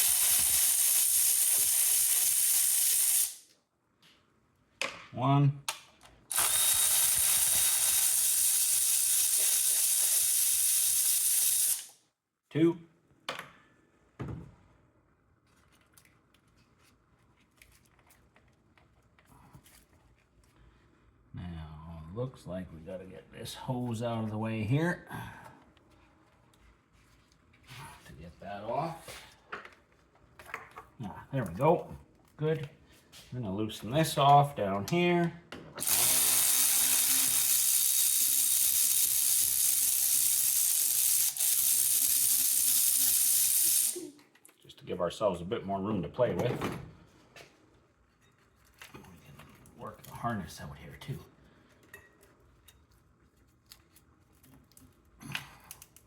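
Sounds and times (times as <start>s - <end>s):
high-pitched hiss: 35.9s - 44.2s.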